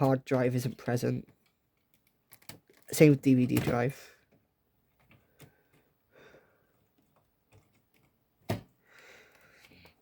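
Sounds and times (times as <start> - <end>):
plastic parts clicking and tapping: 0.0 - 5.9, 6.7 - 8.7.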